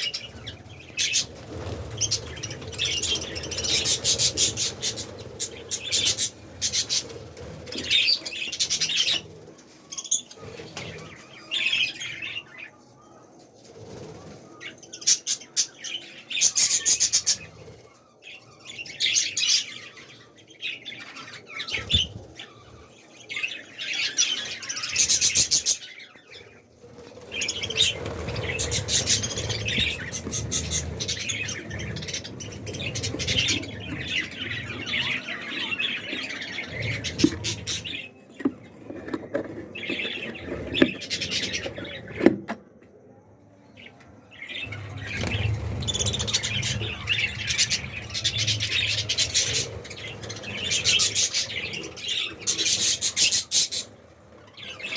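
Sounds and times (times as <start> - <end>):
budgerigars chattering and chirping: 0.0 - 9.3, 27.4 - 39.2, 44.6 - 53.9.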